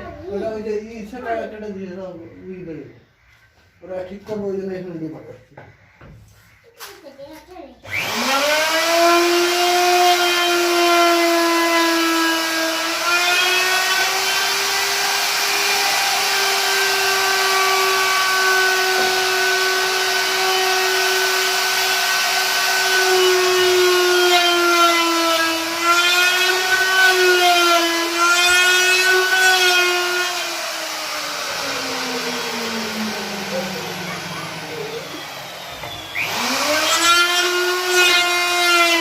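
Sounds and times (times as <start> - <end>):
wood router cutting wood: 7.8 - 39.0.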